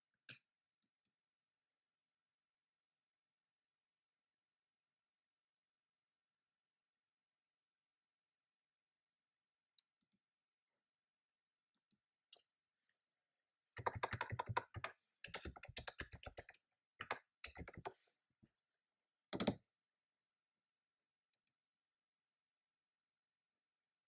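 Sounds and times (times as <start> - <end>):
typing on computer keyboard: 13.8 - 17.9, 19.4 - 19.6.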